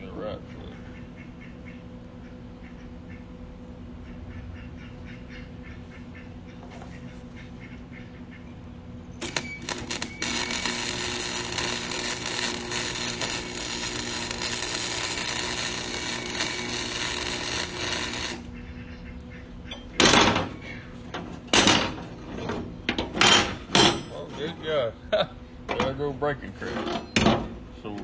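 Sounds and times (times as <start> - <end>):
welding arc crackling: 9.2 - 18.6.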